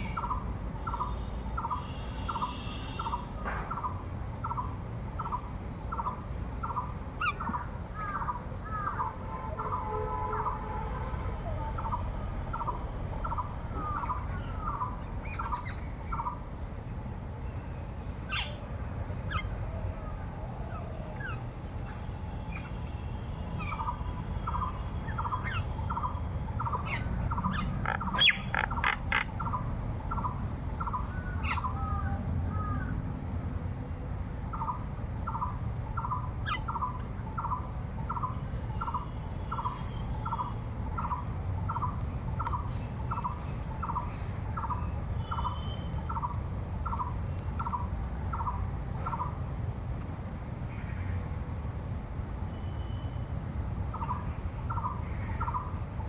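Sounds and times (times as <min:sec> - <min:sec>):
high-pitched insect drone: 0:00.0 - 0:33.0, 0:34.4 - 0:49.5, 0:50.4 - 0:56.0
higher bird chirps: 0:17.5 - 0:19.6, 0:21.1 - 0:31.9.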